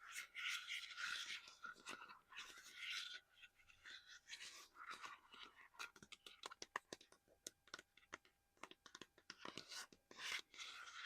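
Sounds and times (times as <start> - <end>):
fingertips scratching an object: 9.4 - 11.0.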